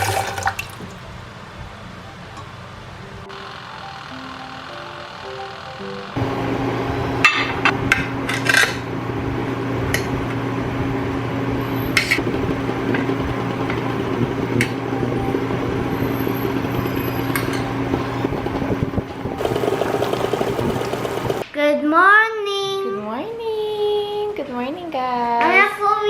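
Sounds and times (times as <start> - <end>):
electric appliance hum: 0.0 - 21.4
metal utensils clinking on dishes: 7.3 - 8.8, 11.9 - 12.2.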